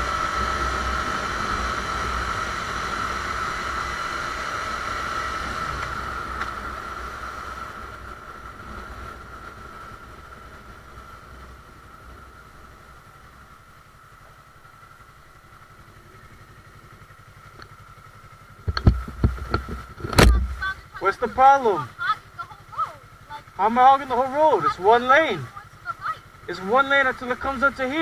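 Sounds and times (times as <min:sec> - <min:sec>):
motorcycle engine rumble: 0:00.0 - 0:28.0.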